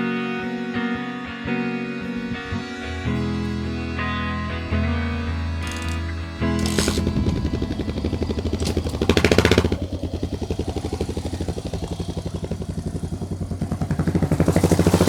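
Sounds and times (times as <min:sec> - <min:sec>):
motorcycle engine running: 0:05.3 - 0:15.0.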